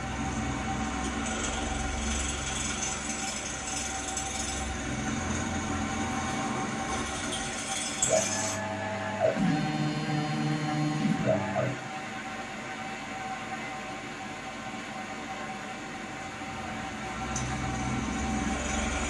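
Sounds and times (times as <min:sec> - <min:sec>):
mill spindle running: 0:00.0 - 0:12.1
motors whining: 0:08.0 - 0:11.9.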